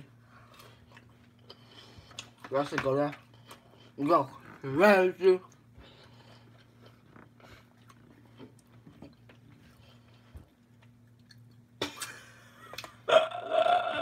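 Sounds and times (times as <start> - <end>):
quiet chewing: 0.3 - 4.7, 5.4 - 11.9.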